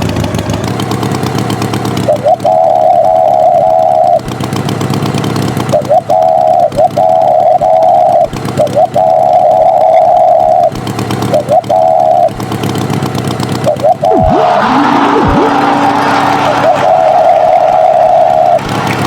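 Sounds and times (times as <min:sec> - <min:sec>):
low engine running: 0:00.0 - 0:19.0
horn blasts: 0:14.1 - 0:19.0.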